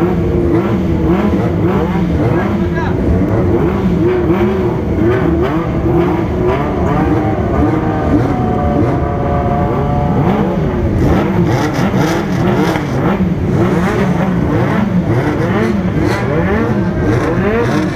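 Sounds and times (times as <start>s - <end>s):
motorcycle engines revving: 0.0s - 17.9s.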